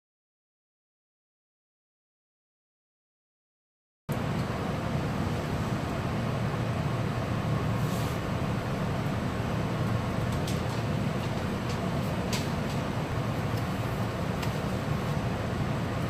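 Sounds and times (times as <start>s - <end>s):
train interior hum: 4.1s - 16.0s.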